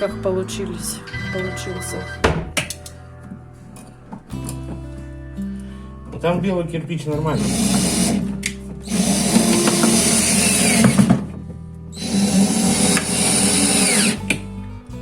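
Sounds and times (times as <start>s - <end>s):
background music: 0.0s - 15.0s
power drill running: 7.4s - 11.2s, 12.0s - 14.2s.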